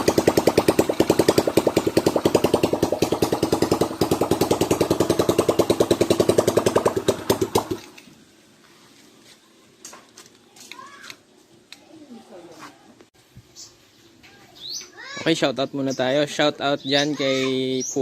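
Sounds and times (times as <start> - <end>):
two-stroke engine popping: 0.0 - 8.0.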